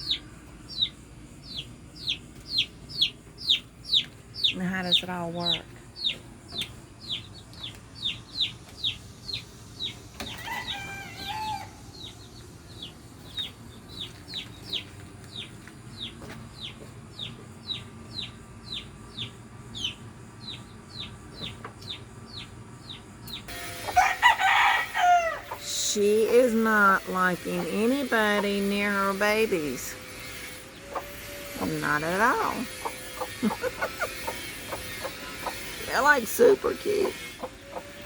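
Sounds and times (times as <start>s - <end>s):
baby chicks peeping: 0.0s - 38.0s
adult chicken calls: 30.8s - 38.0s.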